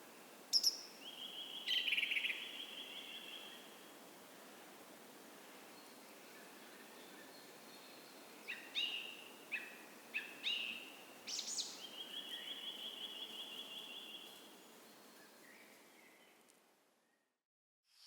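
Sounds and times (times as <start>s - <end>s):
songbird call notes: 0.5s - 3.7s, 5.8s - 14.4s.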